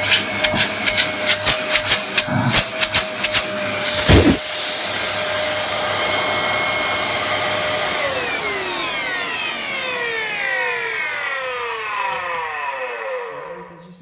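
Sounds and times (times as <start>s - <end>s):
motor winding down: 0.0s - 4.4s
vacuum cleaner whine: 0.0s - 13.9s
thump: 4.0s - 4.4s.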